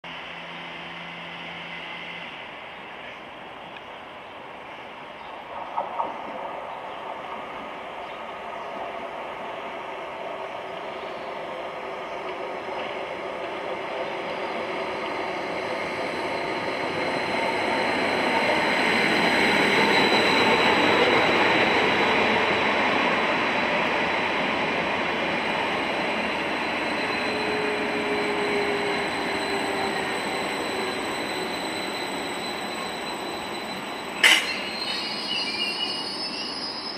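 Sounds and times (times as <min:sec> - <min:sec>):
brakes squealing: 0:26.4 - 0:36.9
sharp clank: 0:34.2 - 0:34.7.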